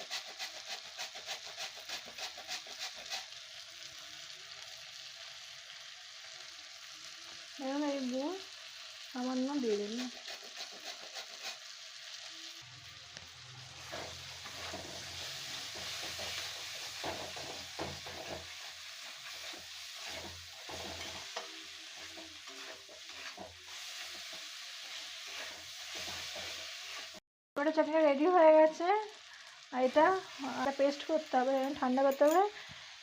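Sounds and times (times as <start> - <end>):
spatula stirring and scraping: 0.0 - 3.4, 9.7 - 11.8, 13.8 - 27.2
food sizzling in a pan: 0.0 - 33.0.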